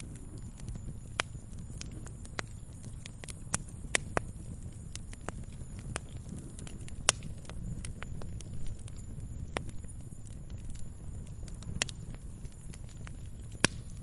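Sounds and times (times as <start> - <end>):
fire low rumble: 0.0 - 14.0
wood fire crackling and popping: 0.0 - 14.0.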